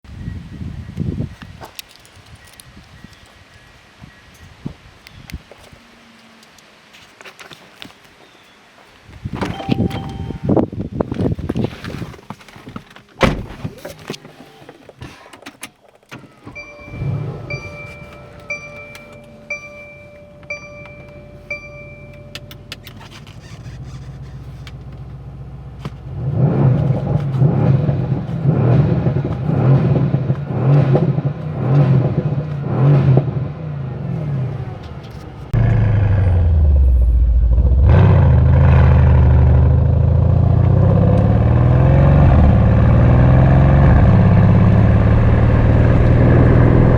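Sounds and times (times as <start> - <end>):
warning chime: 9.5 - 10.6, 16.5 - 23.0
car engine running: 16.6 - 46.9.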